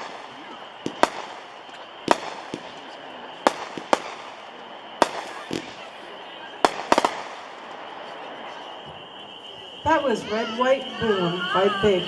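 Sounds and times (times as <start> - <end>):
firework cake bangs: 0.0 - 8.2.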